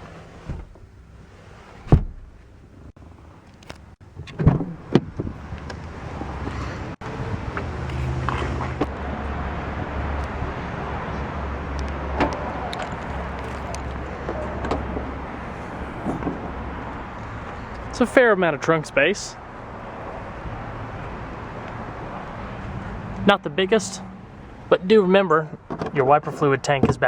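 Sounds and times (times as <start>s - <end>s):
low outdoor hum: 0.0s - 25.1s
car door shutting: 0.3s - 0.9s, 1.7s - 2.5s, 3.6s - 6.8s, 11.8s - 17.9s.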